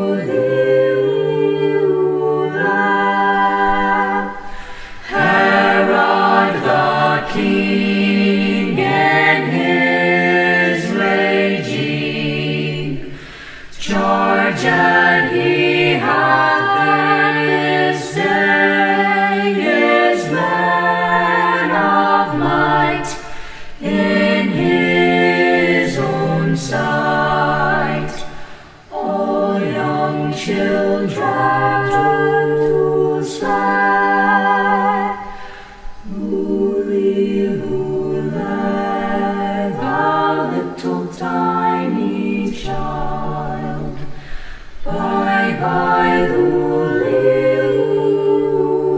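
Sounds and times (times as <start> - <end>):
choir singing a cappella: 0.0 - 48.9.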